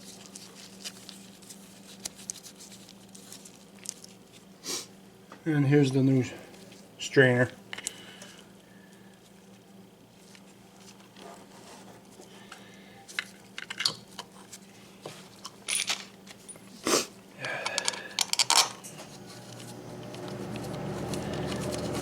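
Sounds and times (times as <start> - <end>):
packaging rustling: 0.0 - 4.5, 19.1 - 22.0
faint steady hum: 0.0 - 22.0
small metal parts clinking: 15.6 - 16.7, 17.8 - 18.9.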